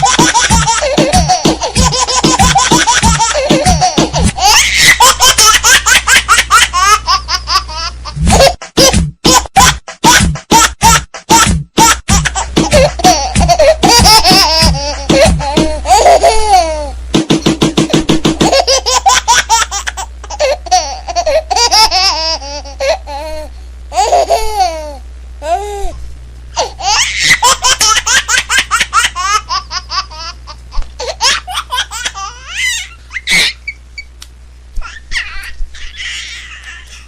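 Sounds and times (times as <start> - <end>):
baby laughing: 0.0 - 17.0, 18.4 - 25.9, 26.6 - 33.8, 34.8 - 37.0
baby squealing: 4.4 - 5.2, 31.0 - 34.1, 34.8 - 37.0.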